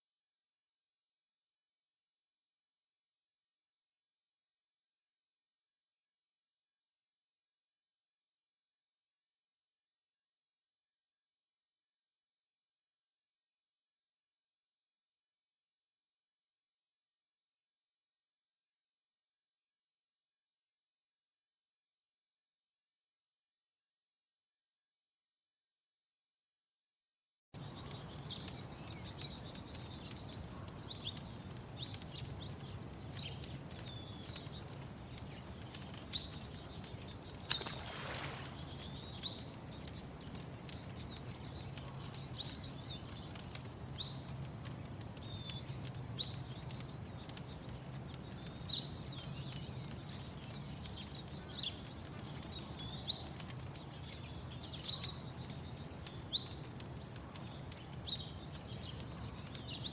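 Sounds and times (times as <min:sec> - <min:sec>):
small birds chirping: 0:27.6 - 0:59.9
wood fire crackling: 0:27.6 - 0:59.9.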